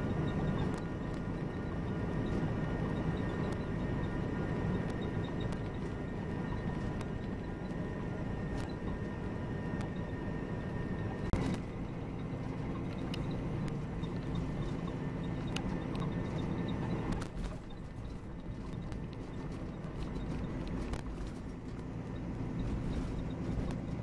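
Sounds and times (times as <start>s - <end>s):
coach engine and road rumble: 0.0s - 24.0s.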